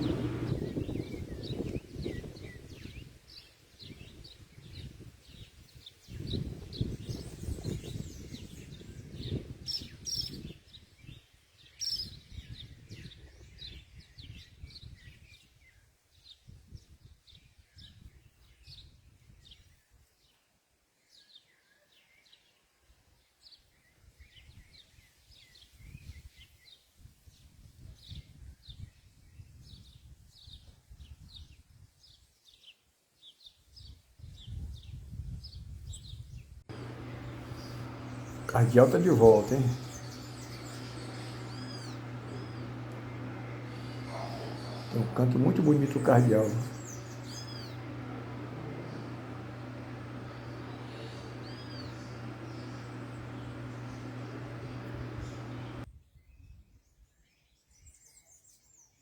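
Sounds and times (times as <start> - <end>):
small birds chirping: 0.0 - 3.0, 36.7 - 55.8.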